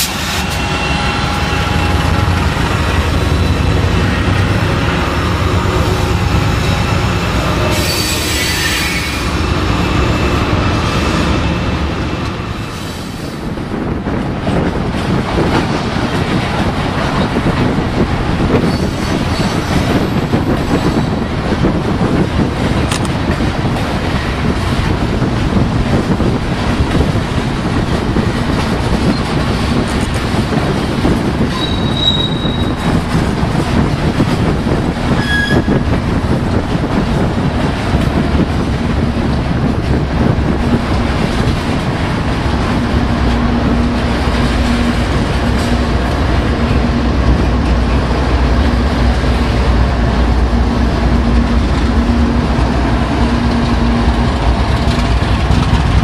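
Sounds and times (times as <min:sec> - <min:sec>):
diesel locomotive hum: 0:00.0 - 0:56.0
steel wheels clattering on rail: 0:00.0 - 0:56.0
high wheel squeals: 0:07.7 - 0:09.3, 0:31.5 - 0:32.8, 0:35.2 - 0:35.7.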